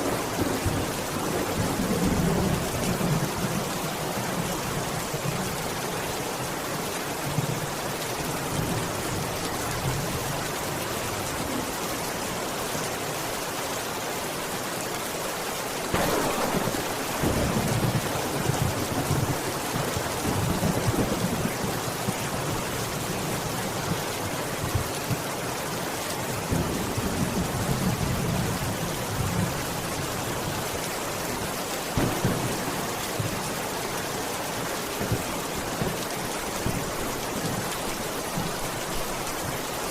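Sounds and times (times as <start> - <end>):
steady rain hissing: 0.0 - 39.9
thunder rumbling: 15.9 - 22.9, 32.0 - 34.0.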